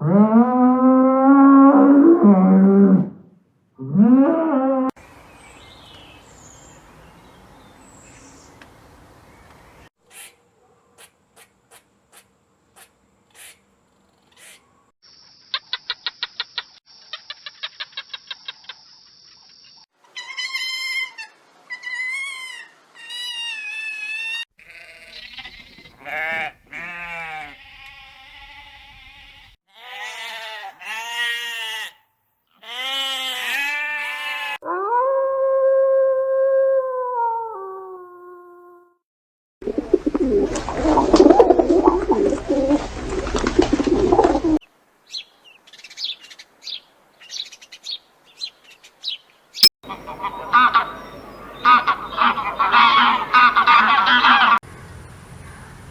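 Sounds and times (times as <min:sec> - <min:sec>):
animal bleating: 0:23.2 - 0:34.6.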